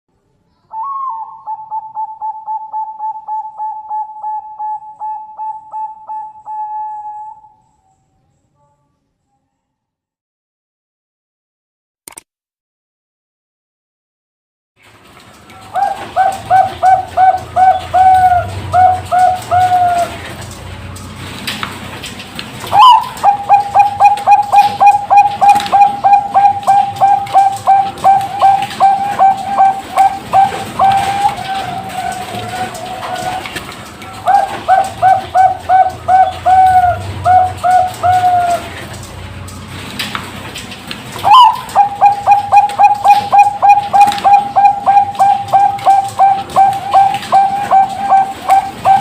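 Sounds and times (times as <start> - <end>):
dove cooing: 0.8 - 7.6, 15.6 - 20.5, 22.6 - 39.0, 41.2 - 49.0.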